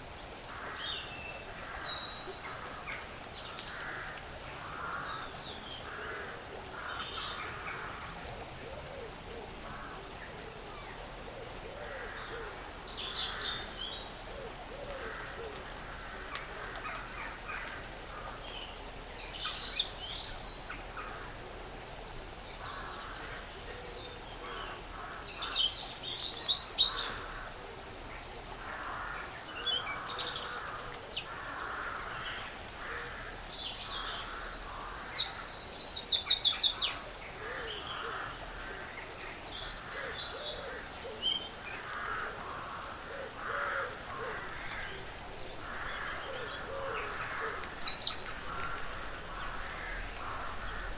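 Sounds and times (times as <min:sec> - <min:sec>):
small birds chirping: 0:37.6 - 0:50.9.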